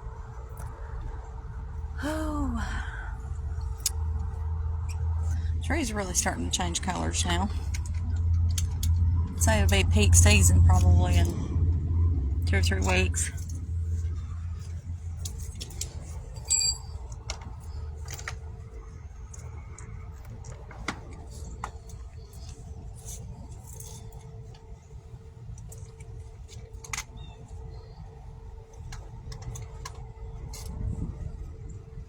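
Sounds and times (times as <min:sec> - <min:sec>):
car rumble: 0:00.0 - 0:26.7
faint steady hum: 0:00.0 - 0:32.0
short ringing clink: 0:16.4 - 0:17.0.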